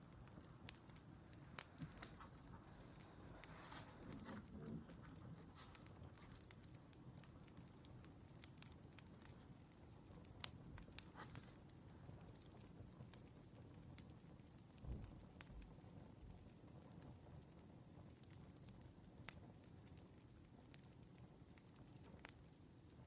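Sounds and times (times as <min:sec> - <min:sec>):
wood fire crackling: 0:00.0 - 0:23.0
soft rustle: 0:00.1 - 0:09.4, 0:10.8 - 0:12.6.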